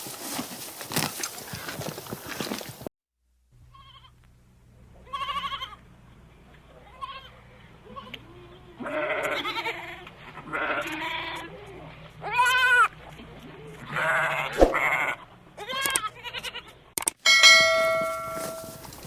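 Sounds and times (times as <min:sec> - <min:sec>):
sheep and goats bleating: 0:03.7 - 0:04.2, 0:05.0 - 0:05.9, 0:06.7 - 0:19.0.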